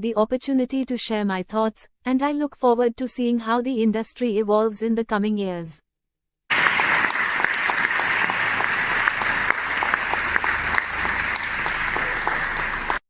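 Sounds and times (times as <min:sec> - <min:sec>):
audience applause: 0:06.5 - 0:13.0.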